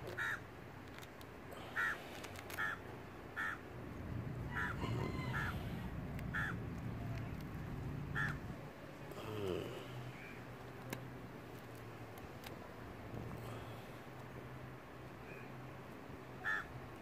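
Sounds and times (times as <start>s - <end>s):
bird calling: 4.4s - 7.3s, 16.4s - 16.7s.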